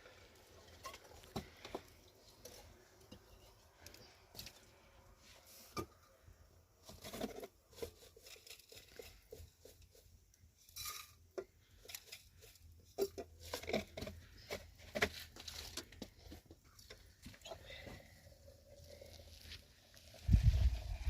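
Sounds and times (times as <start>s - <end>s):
objects being handled: 6.8s - 20.8s.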